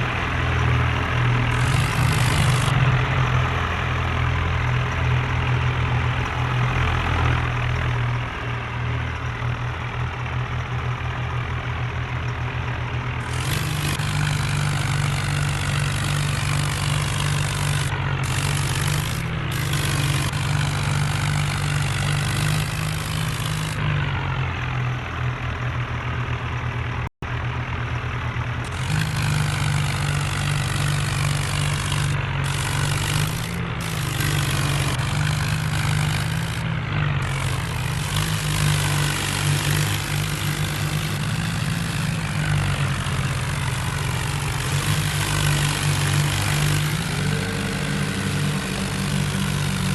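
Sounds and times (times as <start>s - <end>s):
tractor engine revving: 0.0s - 49.9s.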